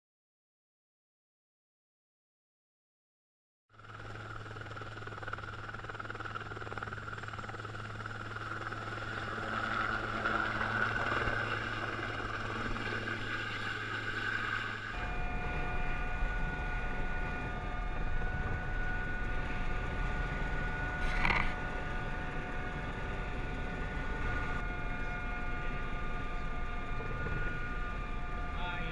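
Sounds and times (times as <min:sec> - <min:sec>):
aircraft engine drone: 0:03.8 - 0:28.9
whining engine tones: 0:05.9 - 0:28.9.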